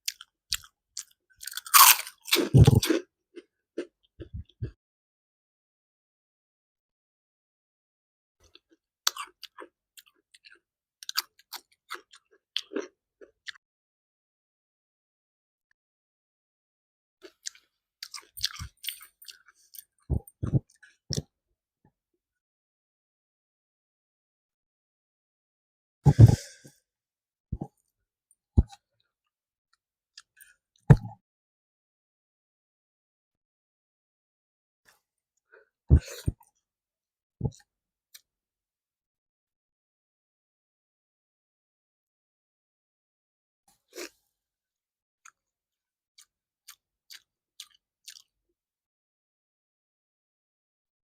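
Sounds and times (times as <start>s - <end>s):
person chewing: 0.0s - 3.1s, 8.6s - 13.6s, 17.2s - 21.2s, 46.2s - 48.3s
crackly bite: 0.1s - 3.0s
wet mouth clicks while chewing: 17.2s - 21.3s.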